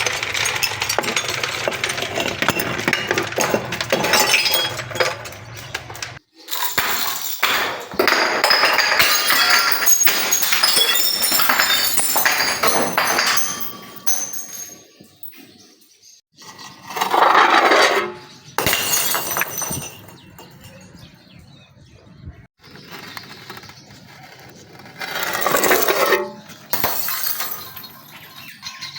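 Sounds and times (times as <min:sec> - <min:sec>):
glass bottles breaking and crunching: 0:00.0 - 0:15.5, 0:17.0 - 0:21.0, 0:25.2 - 0:28.9
glass clinking: 0:00.1 - 0:05.4, 0:06.6 - 0:15.3, 0:18.6 - 0:20.9.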